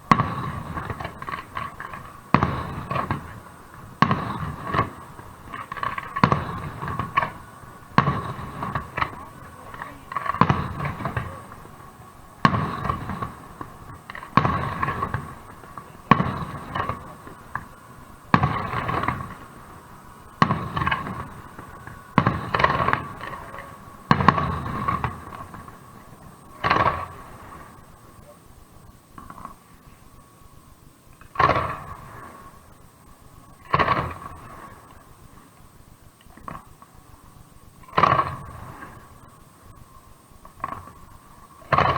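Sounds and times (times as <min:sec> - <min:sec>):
firework shells bursting: 0:00.0 - 0:29.6, 0:31.1 - 0:32.7, 0:33.6 - 0:35.2, 0:37.8 - 0:39.8, 0:40.4 - 0:41.9.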